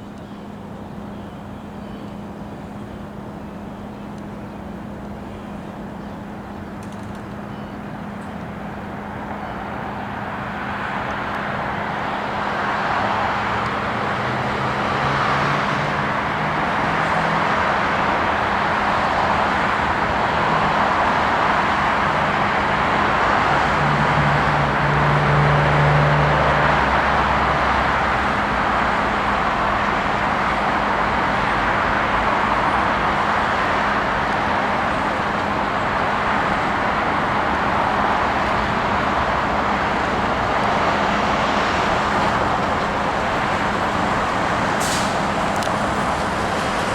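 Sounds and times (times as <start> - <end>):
low engine hum: 0.0 - 46.9
train wheels rumbling on rails: 11.2 - 46.9.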